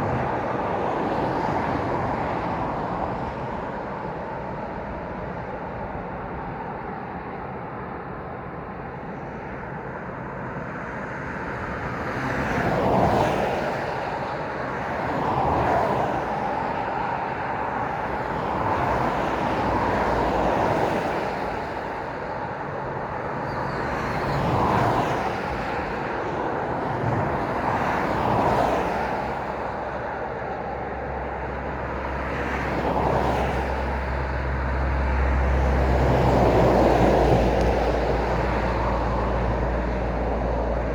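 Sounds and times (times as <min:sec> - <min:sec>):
road background hum: 0:00.0 - 0:40.9
vehicles passing by: 0:10.9 - 0:40.9.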